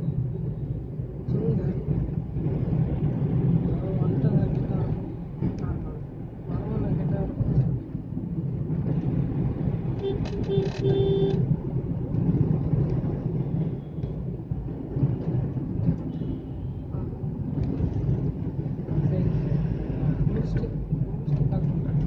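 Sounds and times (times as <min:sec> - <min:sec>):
car driving rumble: 0:00.0 - 0:22.0
vehicle horn honking: 0:10.0 - 0:11.4.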